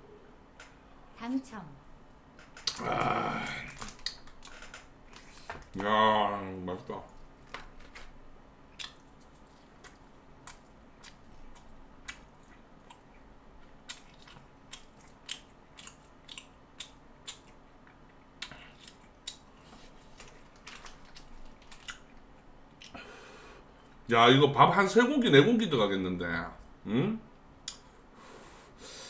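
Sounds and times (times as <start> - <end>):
faint steady hum: 0.0 - 29.0
mouth clicks and smacks chewing: 3.9 - 4.5, 8.7 - 19.4.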